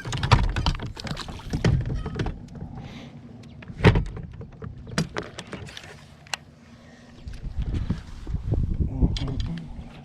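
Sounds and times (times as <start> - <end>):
gear knocks and clicks: 0.0 - 6.4.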